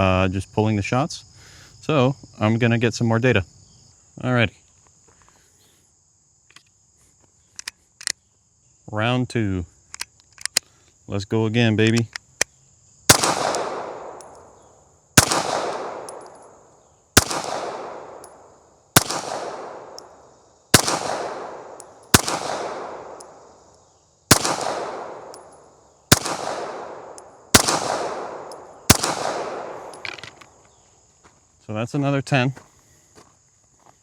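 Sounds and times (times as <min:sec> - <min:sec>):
pistol shots with echo: 0:13.1 - 0:14.6, 0:15.2 - 0:16.6, 0:17.2 - 0:23.5, 0:24.3 - 0:30.2.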